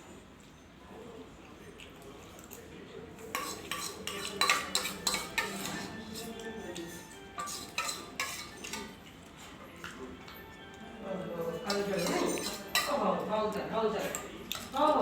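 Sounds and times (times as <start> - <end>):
metal utensils clinking on dishes: 3.2 - 15.0.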